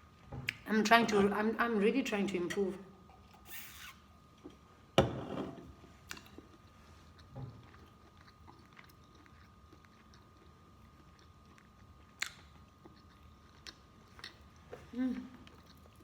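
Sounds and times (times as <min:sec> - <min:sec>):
faint steady hum: 0:00.0 - 0:16.0
chewing fried chicken: 0:06.1 - 0:16.0.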